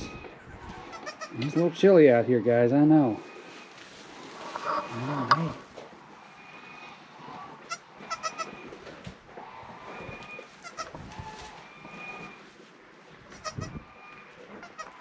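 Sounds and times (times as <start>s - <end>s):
goats bleating: 0.0s - 1.9s, 7.6s - 8.6s, 10.6s - 11.6s, 14.6s - 15.0s.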